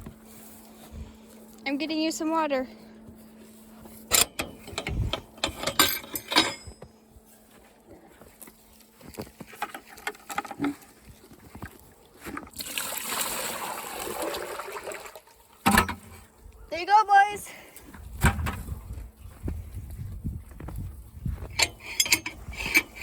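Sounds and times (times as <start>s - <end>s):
water container clattering: 9.5s - 16.2s
water pouring into container: 12.5s - 15.4s.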